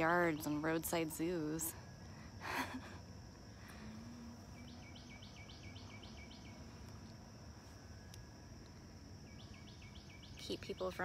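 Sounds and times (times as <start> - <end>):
high-pitched insect buzz: 3.4 - 10.7
bird chirping: 4.4 - 7.1, 9.2 - 11.0.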